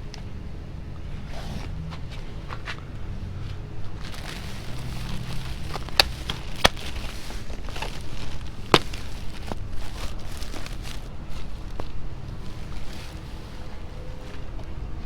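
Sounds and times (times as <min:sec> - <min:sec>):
trash knocking and clattering: 0:03.9 - 0:12.0.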